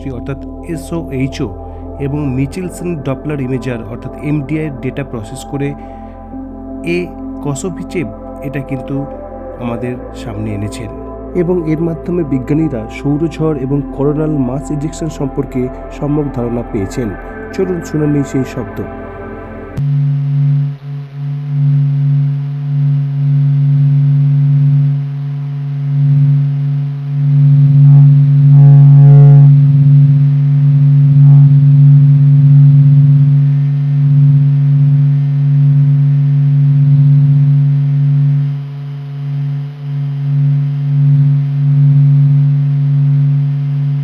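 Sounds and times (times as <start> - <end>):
high cluster of tones: 0.0 - 19.8
deep steady hum with overtones: 0.0 - 44.0.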